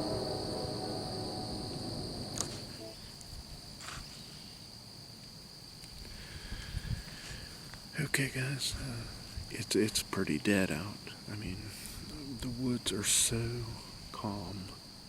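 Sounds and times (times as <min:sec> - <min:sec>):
tone: 0:00.0 - 0:03.0
crickets chirring: 0:00.0 - 0:15.0.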